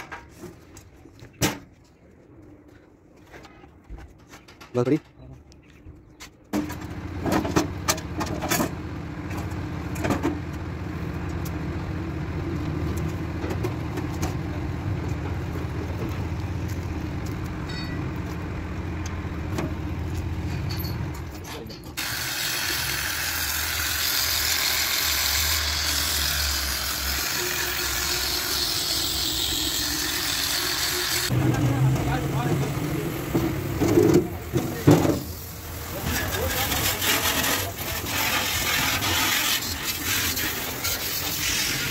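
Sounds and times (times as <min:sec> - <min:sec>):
engine starting and running: 0:06.6 - 0:41.9.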